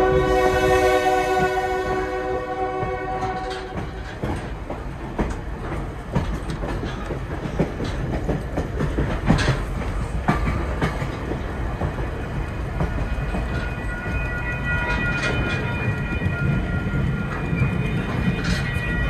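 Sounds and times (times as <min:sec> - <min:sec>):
train horn: 0:00.0 - 0:04.1
train rumble: 0:00.0 - 0:19.0
wheels clicking over rail joints: 0:01.3 - 0:19.0.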